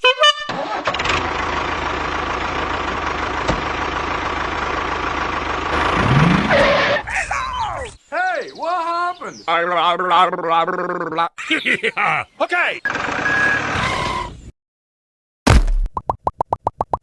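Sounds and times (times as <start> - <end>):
vehicle engine revving: 1.0 - 7.1.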